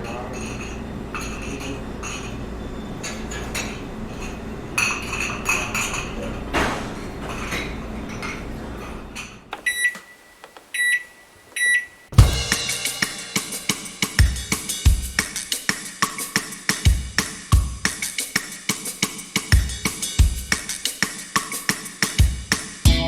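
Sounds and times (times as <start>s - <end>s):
dishes clinking: 3.0s - 14.0s
microwave beeps: 9.5s - 12.4s
drum kit playing: 12.1s - 23.0s.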